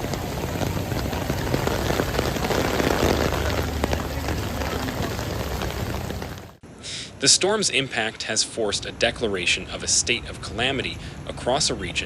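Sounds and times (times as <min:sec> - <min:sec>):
low rumble: 0:00.0 - 0:06.6
water rushing and splashing: 0:00.0 - 0:06.6.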